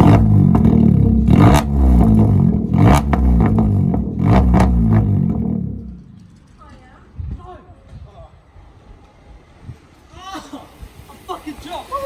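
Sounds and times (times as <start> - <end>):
car engine revving: 0.0 - 6.4
exhaust pops: 0.0 - 6.6.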